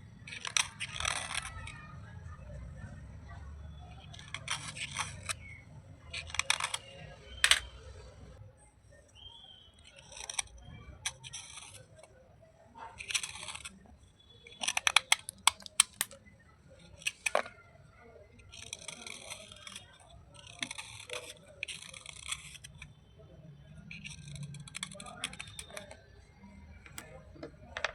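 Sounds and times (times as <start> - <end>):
sharp snaps and cracks: 14.5 - 17.6.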